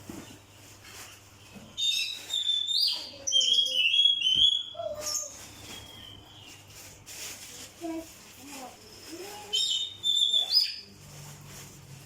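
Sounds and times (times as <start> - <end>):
magpie-robin whistled song: 1.8 - 6.6, 9.5 - 10.9.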